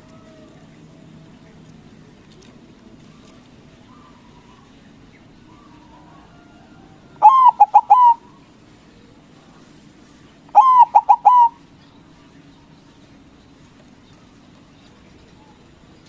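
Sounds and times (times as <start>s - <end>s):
dove cooing: 2.9s - 9.7s, 10.4s - 11.7s.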